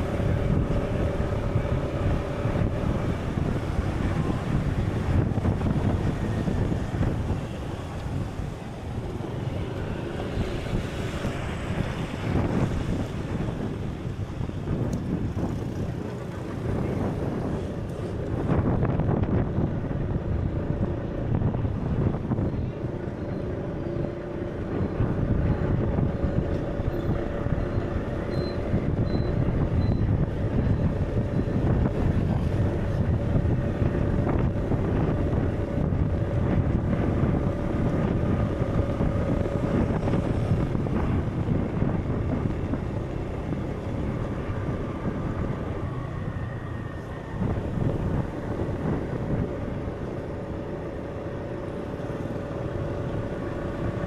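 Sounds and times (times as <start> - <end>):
low rumbling wind-like noise: 0.0 - 54.0.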